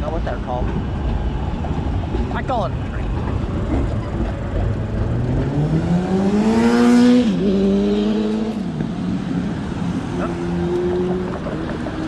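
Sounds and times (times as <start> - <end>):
wind and road noise: 0.0 - 12.0
vehicle motor accelerating: 3.1 - 8.6.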